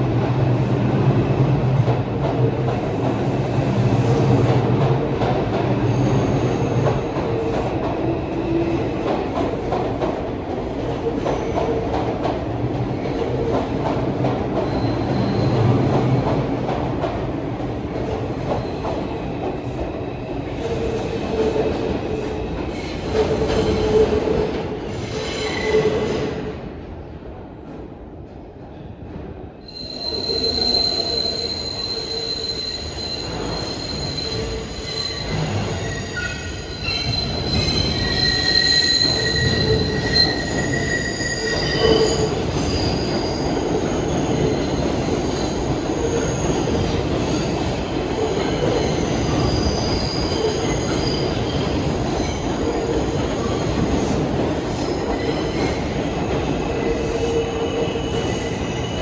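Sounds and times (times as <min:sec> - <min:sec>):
train wheels squealing: 0:14.6 - 0:16.0, 0:24.9 - 0:26.4, 0:29.6 - 0:59.0.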